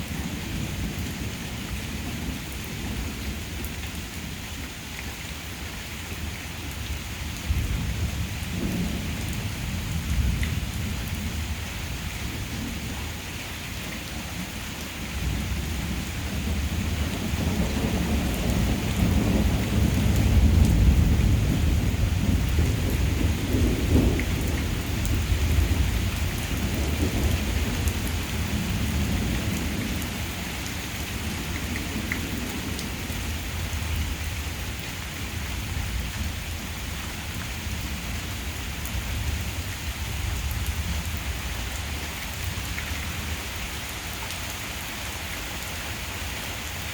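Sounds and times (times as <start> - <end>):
rain falling: 0.0 - 46.9
rolling thunder: 15.2 - 30.4.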